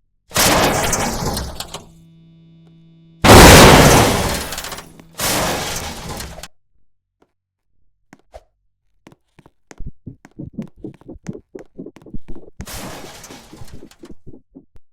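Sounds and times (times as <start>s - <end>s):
loud crashing bursts: 0.4s - 1.7s, 3.2s - 6.4s.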